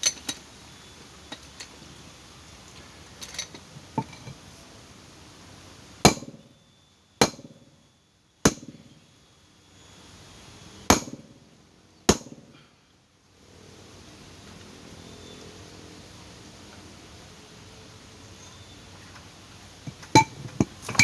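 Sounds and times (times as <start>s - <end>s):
hammer blows on metal: 6.1s - 6.4s, 7.2s - 7.6s, 10.9s - 11.4s.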